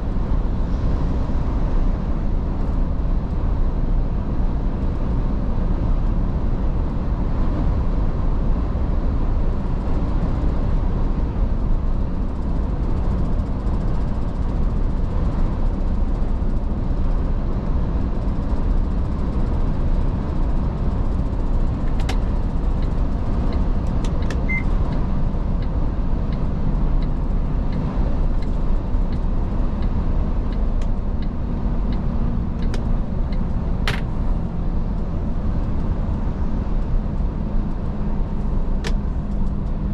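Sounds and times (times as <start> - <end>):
road rumble: 0.0 - 39.9
truck engine drone: 0.0 - 39.9.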